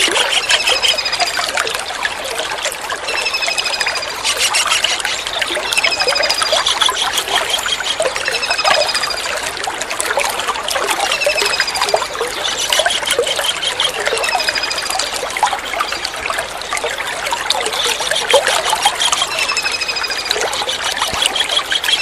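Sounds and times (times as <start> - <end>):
water trickling and splashing: 0.0 - 22.0
kingfisher trilling: 3.2 - 8.6.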